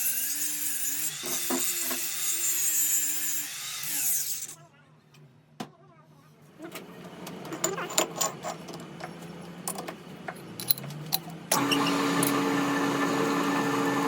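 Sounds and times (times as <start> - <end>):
metal parts clinking: 10.6 - 11.3
power tool running: 11.5 - 14.0.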